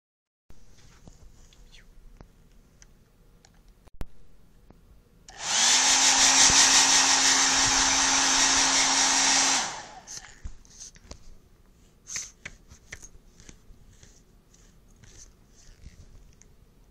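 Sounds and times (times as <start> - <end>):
hair dryer running: 5.3 - 10.2.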